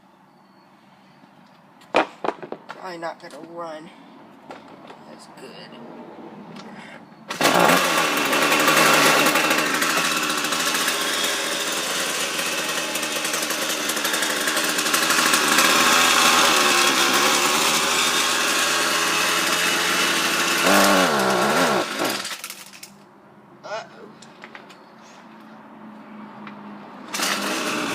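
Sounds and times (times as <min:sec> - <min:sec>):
string trimmer engine running: 0:07.3 - 0:22.5, 0:27.1 - 0:27.9.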